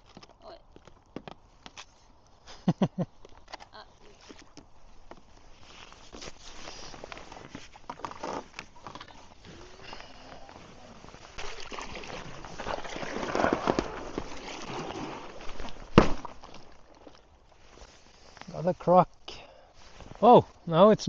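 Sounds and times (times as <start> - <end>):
ice cracking and crunching: 3.2 - 17.8
water sloshing: 10.5 - 17.2.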